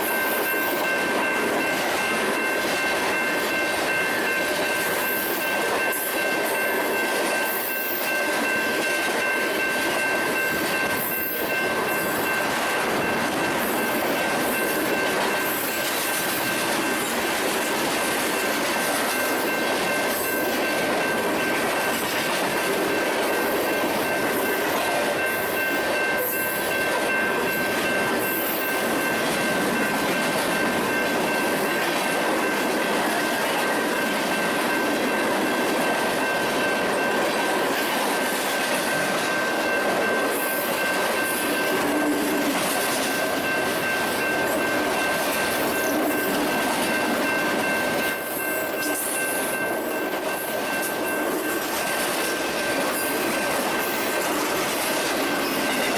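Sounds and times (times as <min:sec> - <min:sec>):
train wheels squealing: 0:00.0 - 0:17.2, 0:23.4 - 0:29.9, 0:38.3 - 0:55.9
rumble of freight cars on rails: 0:00.0 - 0:55.9.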